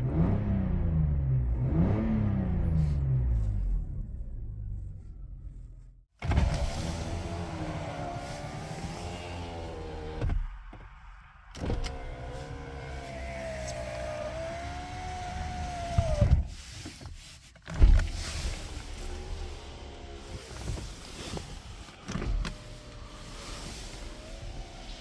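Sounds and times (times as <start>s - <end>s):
power window motor whining: 6.2s - 10.4s, 11.6s - 16.5s, 17.8s - 25.0s.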